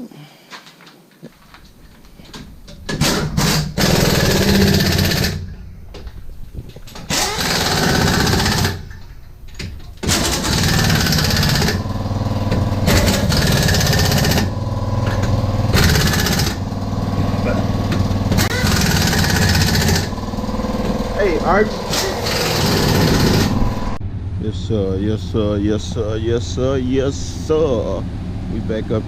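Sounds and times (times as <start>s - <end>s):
pneumatic impact wrench hammering: 2.0s - 23.9s.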